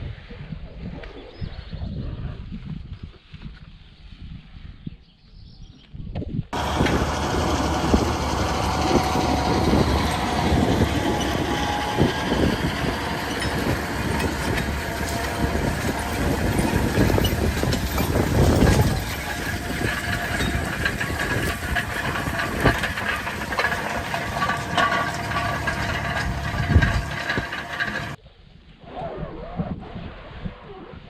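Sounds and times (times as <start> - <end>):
rattling and clattering: 6.6 - 28.2
tractor engine running: 6.6 - 28.2.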